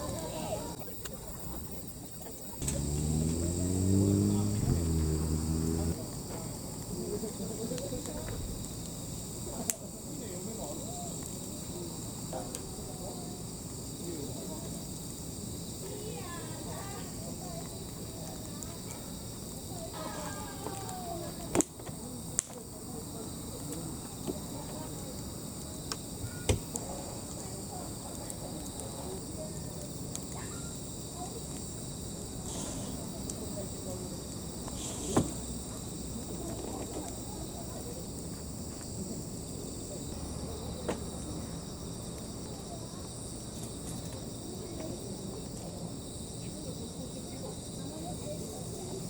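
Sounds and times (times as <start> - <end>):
crickets chirring: 0.0 - 49.0
sharp crack: 2.6 - 6.0.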